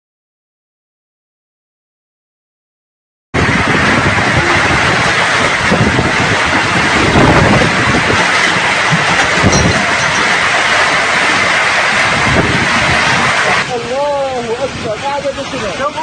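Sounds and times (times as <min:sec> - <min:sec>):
wind buffeting microphone: 0:03.4 - 0:13.6
strong wind blowing: 0:03.4 - 0:13.7.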